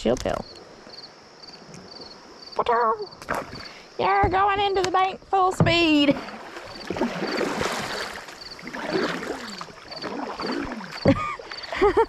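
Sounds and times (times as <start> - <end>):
insects chirping: 0.0 - 12.0
water splashing around kayak: 3.2 - 12.0.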